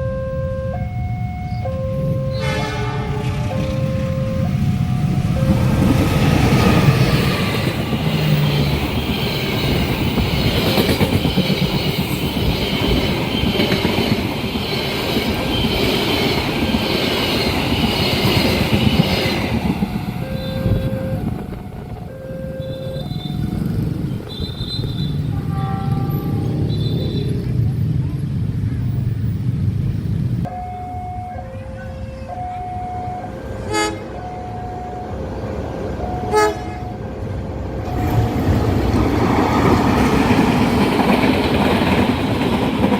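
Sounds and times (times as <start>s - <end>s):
crossing warning signal tones: 0.0s - 27.4s, 30.4s - 38.9s
wheels screeching on curve: 5.3s - 21.1s
train wheels clattering: 5.6s - 22.1s, 37.9s - 42.9s.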